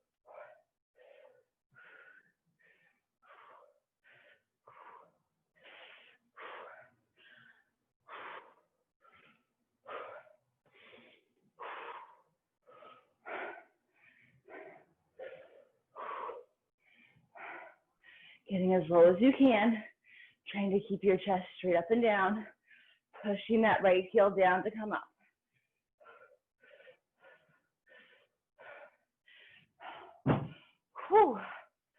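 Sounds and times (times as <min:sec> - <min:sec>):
person breathing hard: 0:00.0 - 0:18.5, 0:25.2 - 0:31.8.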